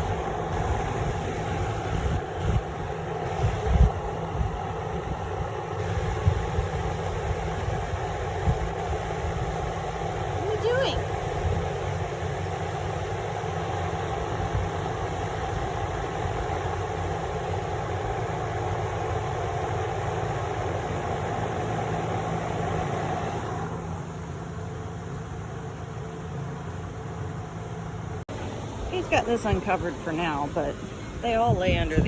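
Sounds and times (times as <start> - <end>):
electric fan humming: 0.0 - 32.0.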